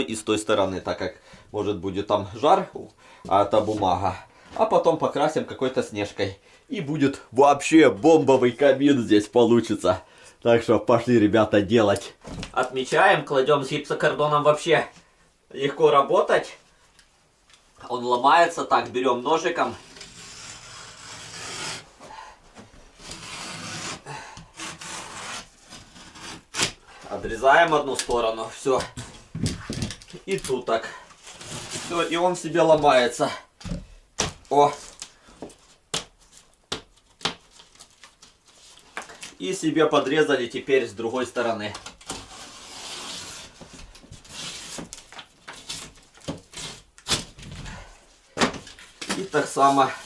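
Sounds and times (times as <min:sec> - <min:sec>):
knife scraping through drywall: 0:19.7 - 0:21.9, 0:23.0 - 0:26.8, 0:31.2 - 0:32.2, 0:42.1 - 0:43.6, 0:44.2 - 0:45.0.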